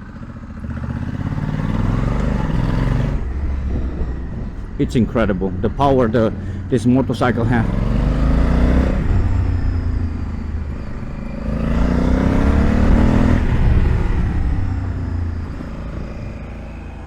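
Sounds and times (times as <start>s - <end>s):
low rumble of wind and road: 0.0s - 17.0s
motorcycle engine accelerating: 0.0s - 17.0s.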